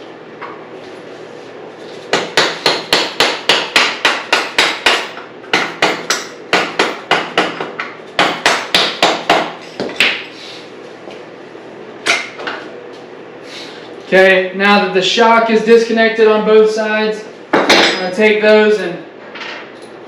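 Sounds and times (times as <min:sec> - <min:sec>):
mallet hammering metal punch: 0:02.1 - 0:10.2.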